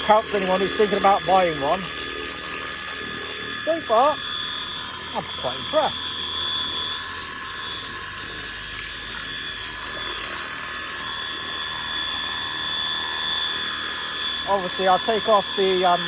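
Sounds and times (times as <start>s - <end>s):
pressure washer motor whine: 0.0s - 16.0s
water jet hissing: 0.0s - 16.0s.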